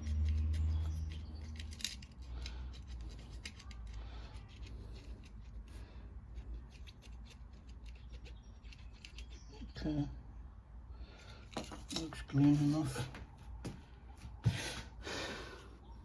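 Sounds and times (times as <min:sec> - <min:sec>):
small metallic clicks and scratches: 0:00.0 - 0:09.8.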